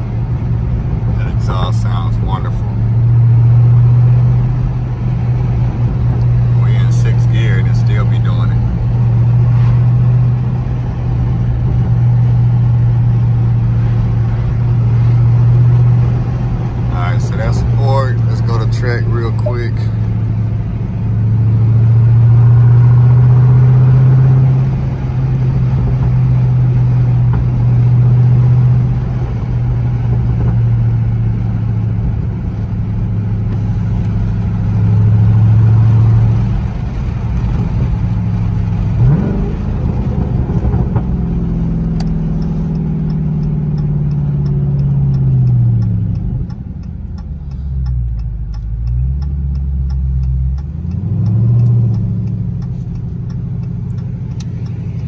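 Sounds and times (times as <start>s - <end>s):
car engine drone from cabin: 0.0s - 55.0s
turn signal ticking: 0.0s - 55.0s.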